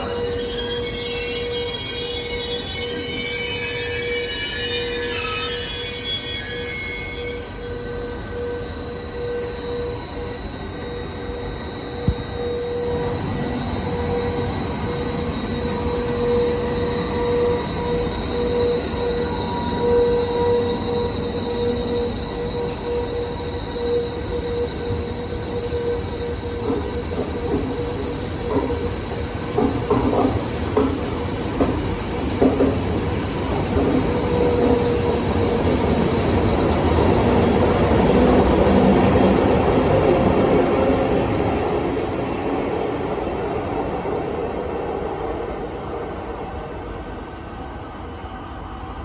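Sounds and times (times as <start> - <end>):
train running past: 0.0 - 49.0
train wheels knocking on track: 25.7 - 36.5.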